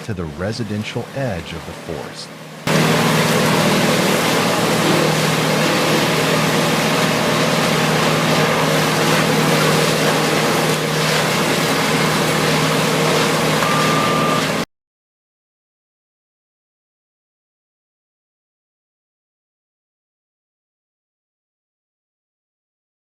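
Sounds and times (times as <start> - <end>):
wood chipper running: 0.0 - 14.6.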